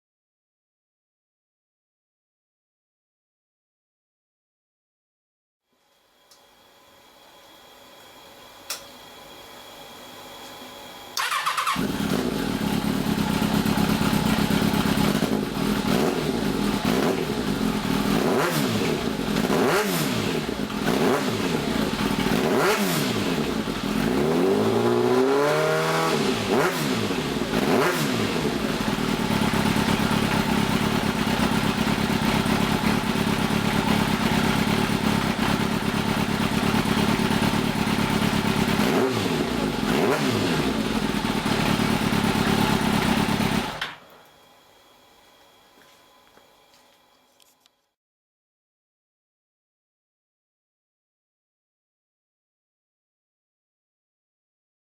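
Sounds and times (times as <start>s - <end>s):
motorcycle engine starter: 11.2s - 15.2s
motorcycle engine idling: 11.2s - 18.2s, 28.5s - 38.8s, 40.7s - 43.8s
motorcycle engine revving: 11.2s - 43.9s.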